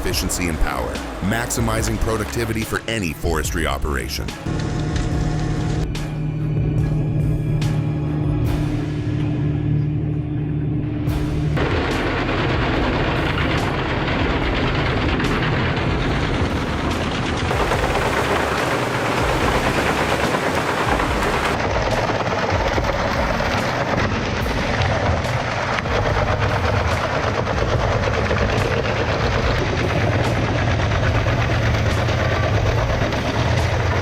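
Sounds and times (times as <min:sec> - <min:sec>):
heavy engine drone: 0:00.0 - 0:34.0
wood chipper chipping logs: 0:11.6 - 0:34.0.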